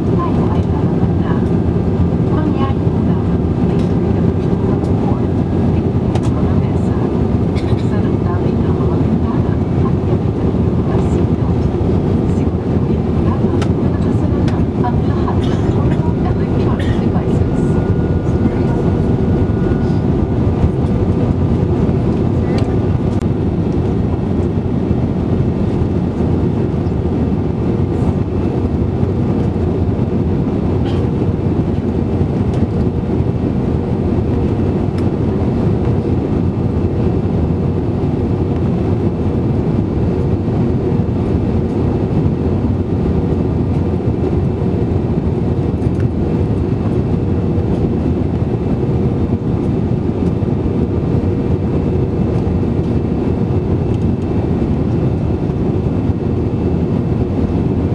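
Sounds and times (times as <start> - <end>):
faint steady hum: 0.0 - 32.9
aircraft cabin engine rush: 0.0 - 57.9.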